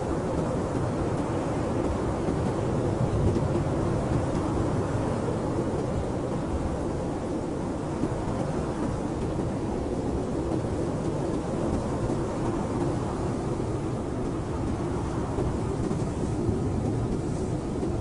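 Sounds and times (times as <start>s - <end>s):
blizzard wind blowing: 0.0s - 18.0s.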